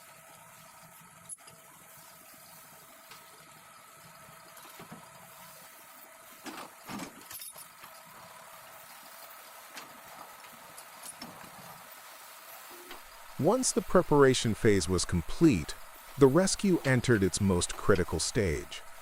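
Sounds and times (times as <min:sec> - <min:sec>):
steady whine: 0:12.7 - 0:19.0
heavy machinery running: 0:12.9 - 0:19.0.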